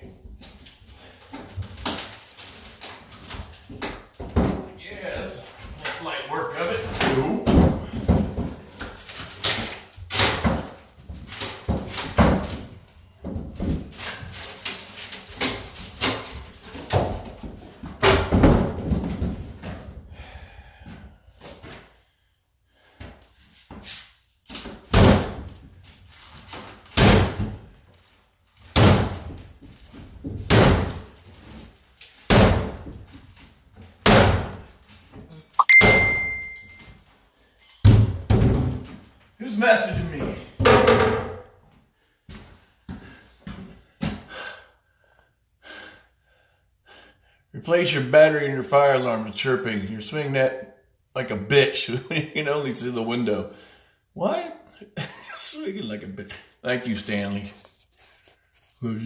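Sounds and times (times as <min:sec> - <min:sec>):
high beep: 0:35.6 - 0:36.9.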